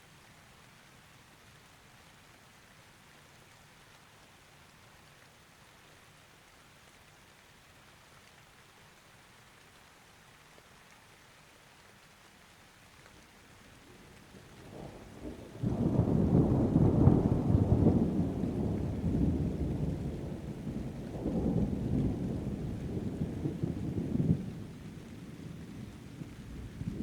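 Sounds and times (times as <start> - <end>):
rain falling: 0.0 - 27.0
thunder rumbling: 14.0 - 27.0.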